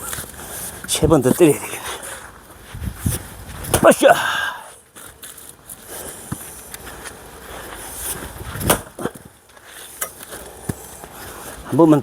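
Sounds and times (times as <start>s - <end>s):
axe striking log: 8.6s - 9.2s.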